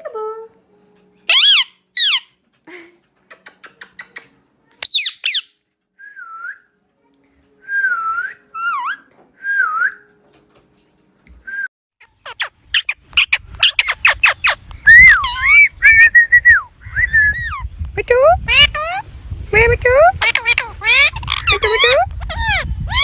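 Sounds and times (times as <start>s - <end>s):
parakeet screeching: 1.3s - 2.3s, 4.8s - 5.5s, 12.0s - 16.0s, 18.5s - 19.0s, 20.2s - 23.0s
parakeet whistled notes: 1.3s - 2.3s, 4.8s - 5.6s, 8.0s - 9.8s, 12.4s - 17.6s.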